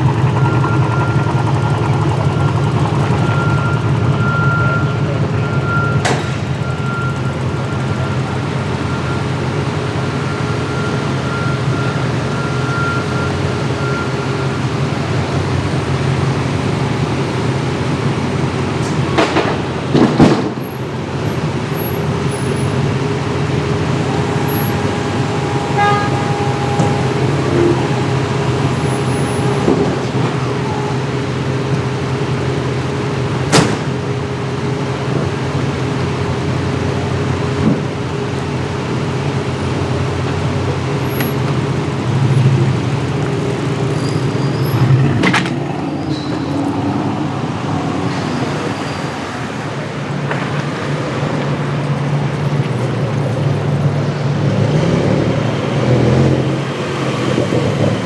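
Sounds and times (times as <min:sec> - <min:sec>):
street traffic engine drone: 0:00.0 - 0:58.0
loud vehicle passing: 0:39.4 - 0:58.0.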